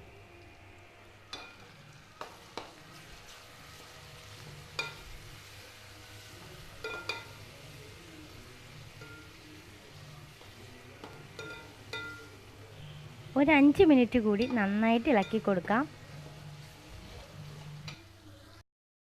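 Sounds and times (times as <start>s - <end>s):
food sizzling in a pan: 0.0s - 18.6s
spoon clinking against metal pan: 4.8s - 5.1s, 6.8s - 7.4s, 9.0s - 9.4s, 11.0s - 12.3s, 14.3s - 15.6s.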